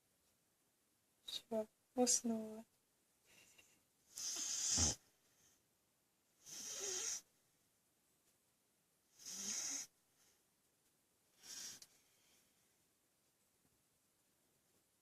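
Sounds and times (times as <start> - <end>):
dog snoring: 4.2 - 5.0, 6.4 - 7.3, 9.2 - 9.9, 11.4 - 11.8.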